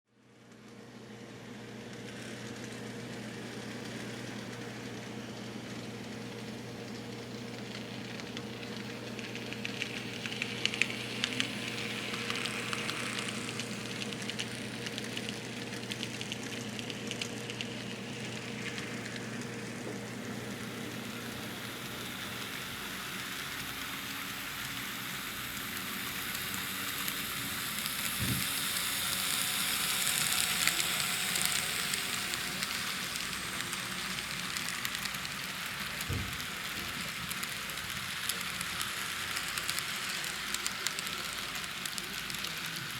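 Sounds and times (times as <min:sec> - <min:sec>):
electric hum: 0:01.5 - 0:42.6
model train wheels rattling on rails: 0:08.0 - 0:14.8, 0:20.4 - 0:42.9.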